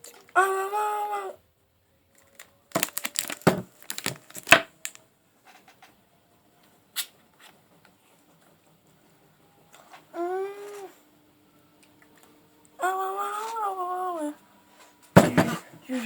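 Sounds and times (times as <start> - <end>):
crinkling and crackling: 2.1 - 5.9.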